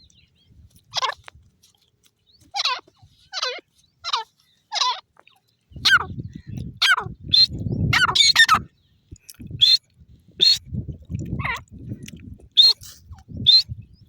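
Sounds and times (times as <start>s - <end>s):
francolin calling: 2.5s - 5.1s, 5.8s - 8.7s.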